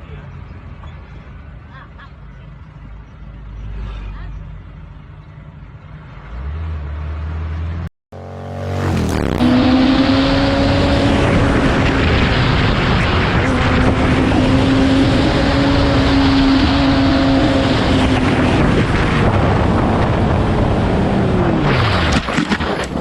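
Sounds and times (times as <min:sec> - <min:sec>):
vehicle engine at high revs: 0:03.3 - 0:23.0
wind rush: 0:08.8 - 0:23.0.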